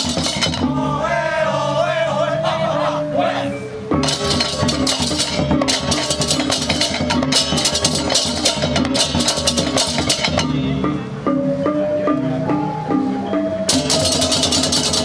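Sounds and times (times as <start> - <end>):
hand cymbals clashing: 0.0 - 0.8, 4.0 - 10.8, 13.7 - 15.0
drums: 0.0 - 1.2, 3.9 - 11.0, 13.6 - 15.0.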